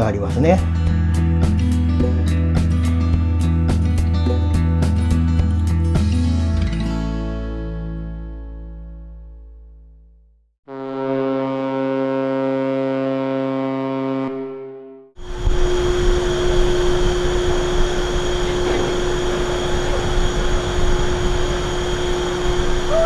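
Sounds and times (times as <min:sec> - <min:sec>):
ship horn blast: 0:10.7 - 0:23.0
ship engine rumble and hum: 0:15.2 - 0:23.0.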